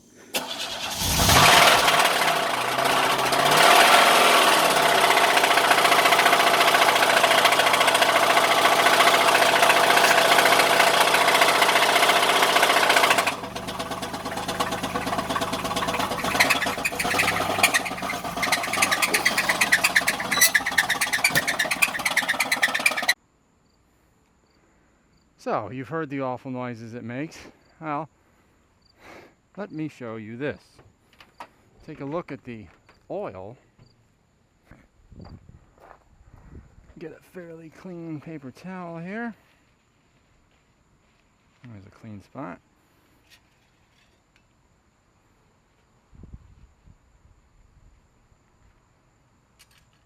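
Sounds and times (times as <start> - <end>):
car engine running: 0.4 - 23.2
engine knocking: 0.4 - 23.2.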